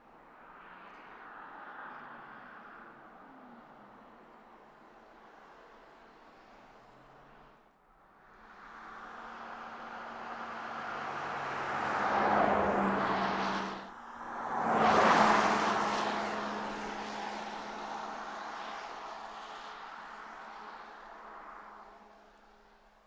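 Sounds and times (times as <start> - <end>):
electric car passing by: 8.7 - 19.0.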